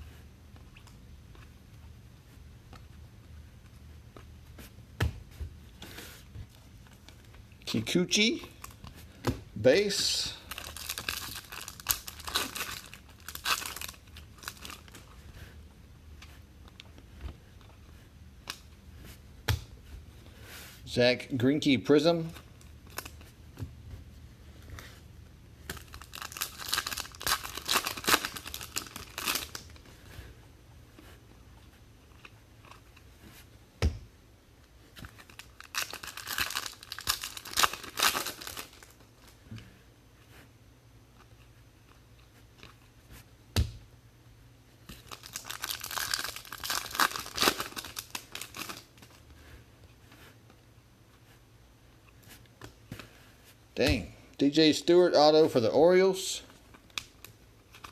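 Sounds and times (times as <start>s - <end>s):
card packaging crinkling: 10.4s - 15.1s, 25.7s - 29.8s, 35.1s - 39.3s, 45.0s - 49.2s.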